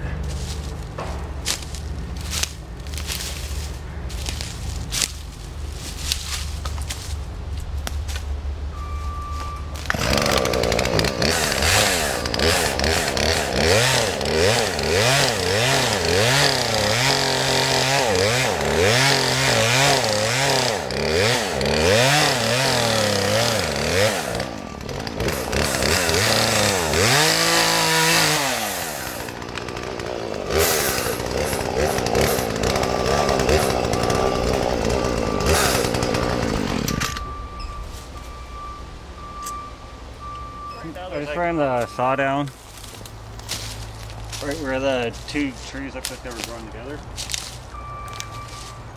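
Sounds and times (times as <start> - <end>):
chainsaw cutting wood: 0.5 - 4.4, 9.8 - 37.8, 43.5 - 48.8.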